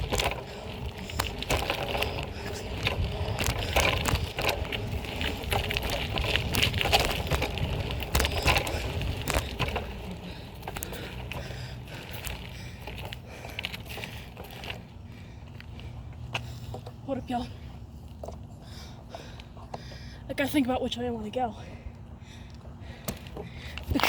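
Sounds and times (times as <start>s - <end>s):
wind on microphone: 0.0s - 9.8s
bike rattles and knocks: 0.0s - 17.5s, 22.9s - 24.0s
bike tyres rumbling on pavement: 0.0s - 20.6s, 22.4s - 24.0s.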